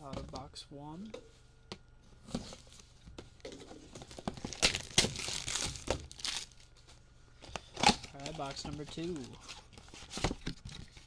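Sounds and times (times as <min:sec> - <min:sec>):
plastic wrapping crinkling and tearing: 0:03.9 - 0:06.9, 0:07.6 - 0:11.0.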